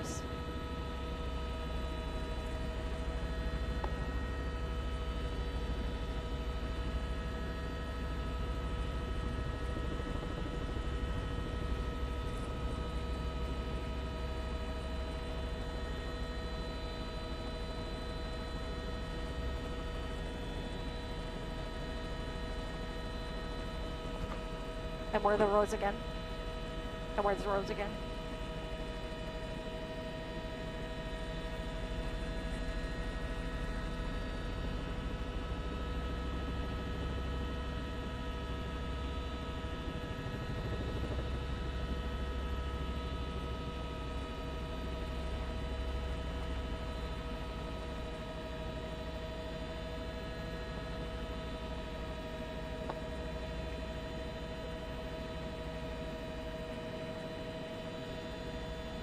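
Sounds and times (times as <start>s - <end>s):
helicopter cabin drone: 0.0s - 59.0s.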